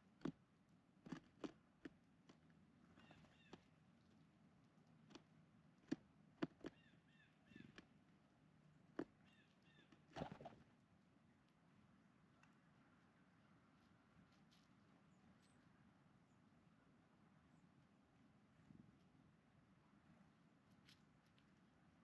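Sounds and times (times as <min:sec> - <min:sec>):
birds tapping and clicking: 0:01.0 - 0:03.7, 0:05.1 - 0:06.9
small birds chirping: 0:02.9 - 0:04.3, 0:05.8 - 0:07.9, 0:09.0 - 0:10.2.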